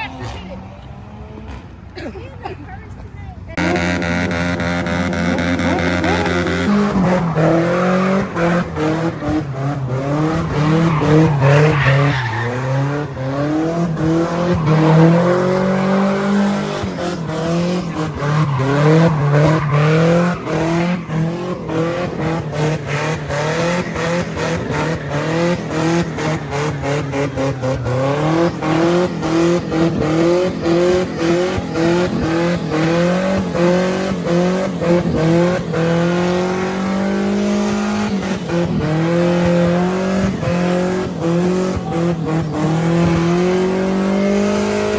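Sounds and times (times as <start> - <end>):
car engine revving hard: 3.5 - 44.9
tyre squeal: 10.1 - 33.8.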